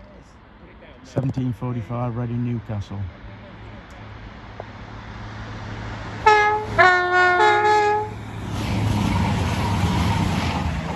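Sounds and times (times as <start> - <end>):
train rushing past: 4.4 - 10.9
train horn blasts: 6.2 - 8.2.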